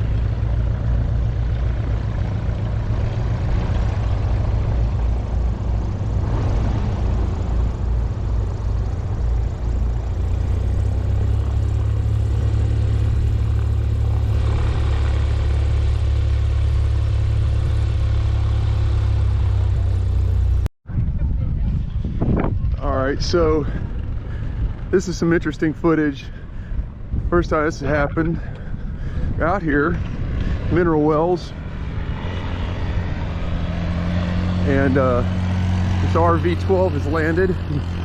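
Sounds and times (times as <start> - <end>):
light aircraft piston engine running: 0.0 - 38.0.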